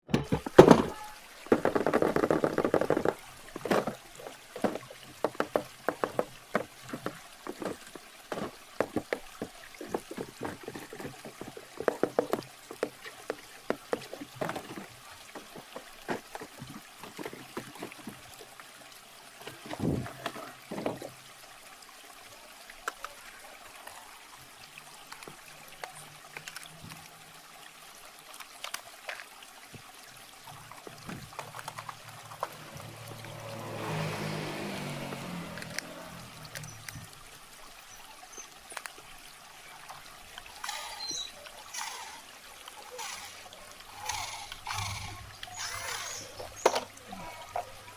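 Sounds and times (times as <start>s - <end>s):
clicks and taps: 4.6s - 18.1s.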